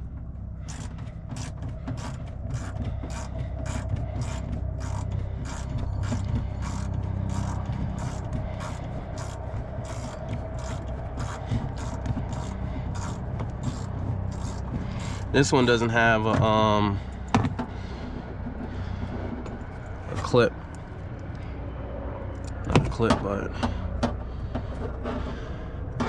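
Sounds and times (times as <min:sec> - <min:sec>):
steady low hum: 0:00.0 - 0:26.0
socket ratchet clicking: 0:00.7 - 0:15.3.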